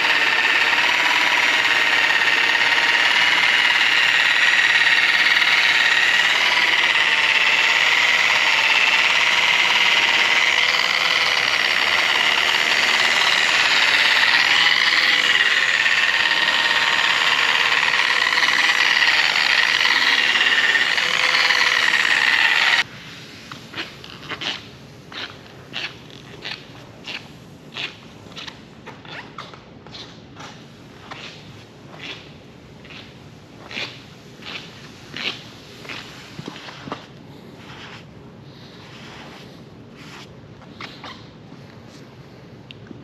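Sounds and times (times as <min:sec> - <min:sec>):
power polisher motor whine: 0:00.0 - 0:22.8.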